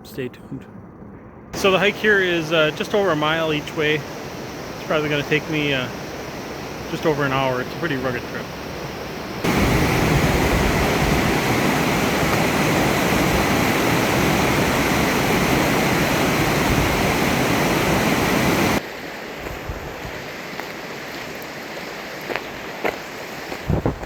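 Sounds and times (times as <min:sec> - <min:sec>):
river water rushing over rapids: 0:01.6 - 0:19.4
quiet outdoor hiss: 0:01.6 - 0:23.6.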